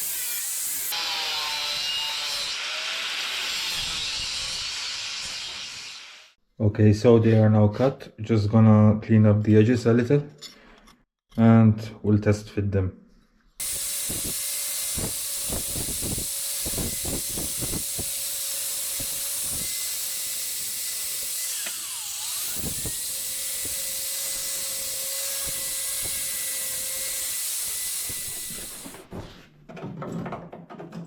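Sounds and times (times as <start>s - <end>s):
power grinder grinding steel: 0.0s - 6.3s, 13.6s - 29.1s.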